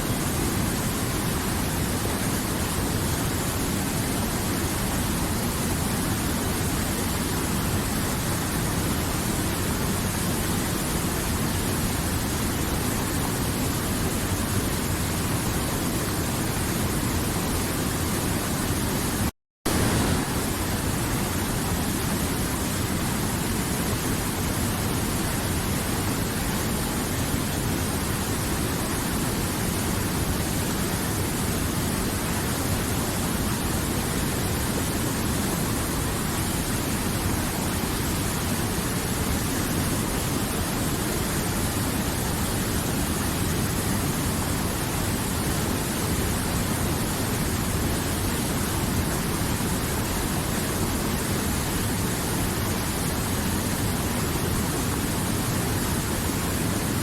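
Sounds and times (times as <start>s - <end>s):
river water flowing: 19.7s - 57.0s.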